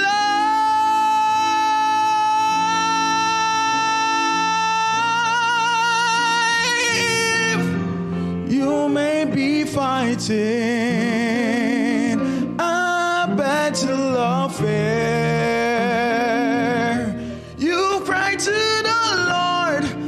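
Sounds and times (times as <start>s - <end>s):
man singing long high note: 0.0s - 7.8s
instrumental accompaniment: 0.0s - 20.0s.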